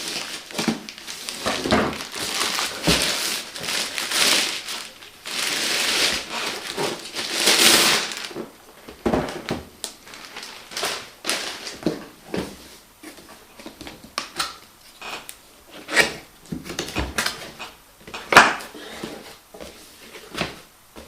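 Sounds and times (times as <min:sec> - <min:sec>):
packaging wrap crinkling: 0:00.0 - 0:08.5, 0:09.3 - 0:11.9.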